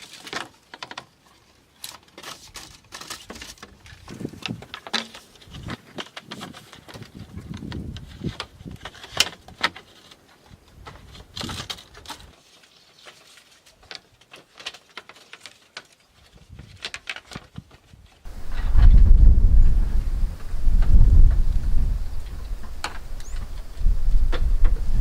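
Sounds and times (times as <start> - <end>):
low rumble of thunder: 18.3 - 25.0.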